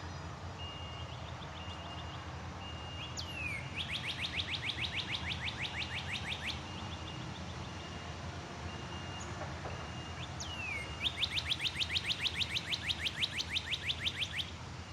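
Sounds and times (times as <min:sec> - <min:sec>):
bird whistling and chirping: 0:02.7 - 0:06.9, 0:10.4 - 0:14.5.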